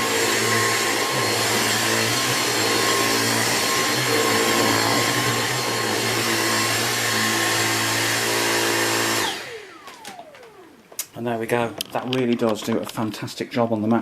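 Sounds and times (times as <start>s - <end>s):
vacuum motor whine spinning down: 0.0s - 10.9s
cordless vacuum running: 0.0s - 11.7s.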